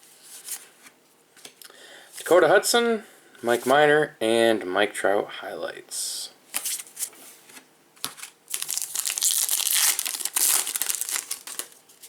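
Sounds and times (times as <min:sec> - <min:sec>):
plastic wrapper crinkling: 0:08.1 - 0:12.0.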